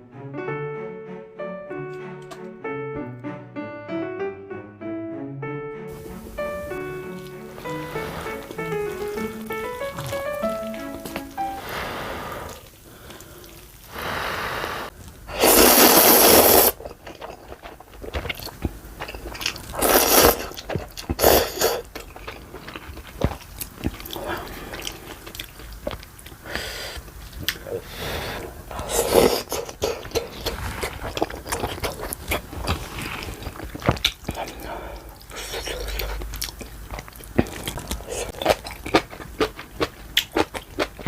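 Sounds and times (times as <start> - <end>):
slurping noodles: 6.3 - 18.6, 19.2 - 25.6, 26.4 - 39.1
chewing and crunching: 6.4 - 11.5, 12.4 - 14.0, 15.8 - 41.0.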